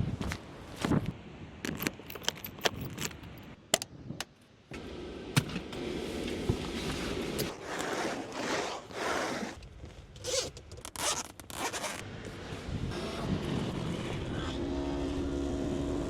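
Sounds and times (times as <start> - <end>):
keys jangling: 1.7 - 3.5.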